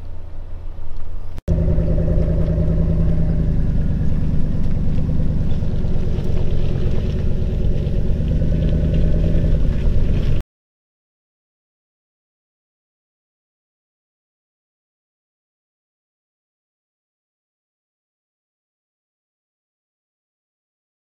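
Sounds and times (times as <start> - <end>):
vehicle engine running: 0.0 - 10.4.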